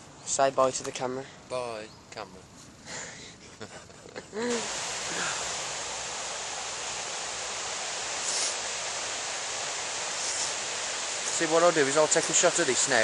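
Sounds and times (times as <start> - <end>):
river rapids rushing: 4.5 - 13.0.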